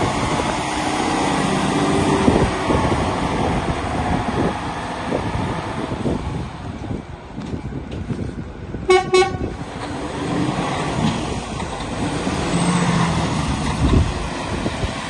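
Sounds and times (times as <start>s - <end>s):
truck diesel engine rumble: 0.0s - 15.0s
wind noise: 0.0s - 15.0s
truck horn toots: 8.9s - 9.6s.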